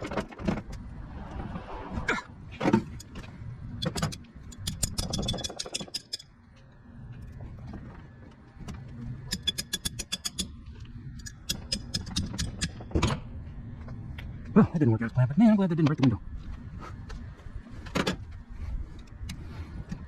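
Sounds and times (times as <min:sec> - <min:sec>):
low steady rumble: 0:00.0 - 0:05.0
metallic clicks of hand tools: 0:03.8 - 0:06.3, 0:09.3 - 0:10.5, 0:11.2 - 0:12.9.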